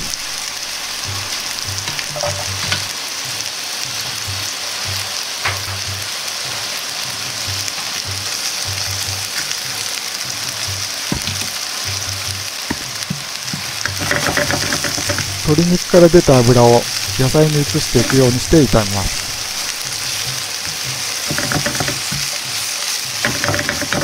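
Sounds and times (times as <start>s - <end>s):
chicken sizzling in hot oil: 0.0s - 24.0s.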